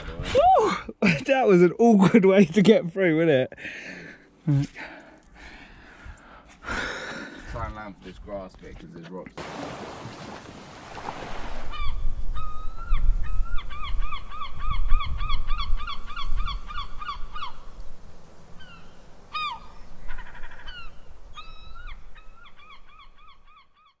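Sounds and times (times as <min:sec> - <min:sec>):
birds calling: 0:09.4 - 0:24.0.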